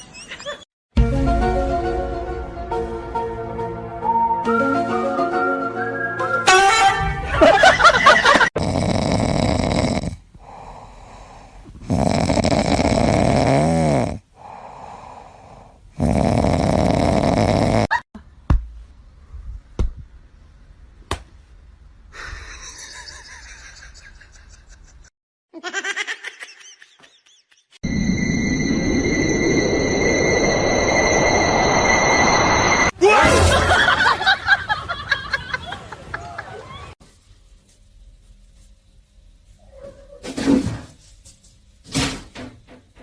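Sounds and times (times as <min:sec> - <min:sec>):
pet snoring: 0:08.6 - 0:10.9, 0:11.8 - 0:14.5, 0:16.0 - 0:17.9.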